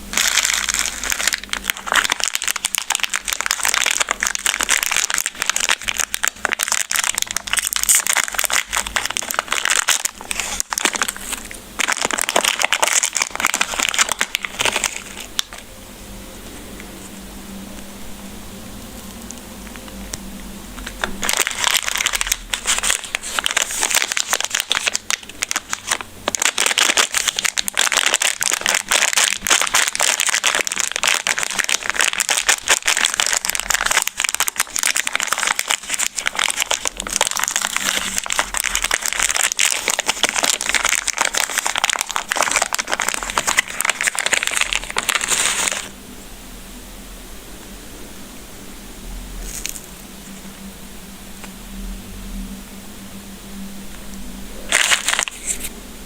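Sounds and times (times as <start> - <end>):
plastic candy wrapper crinkling: 0.0 - 15.7, 20.8 - 45.9, 54.7 - 55.7.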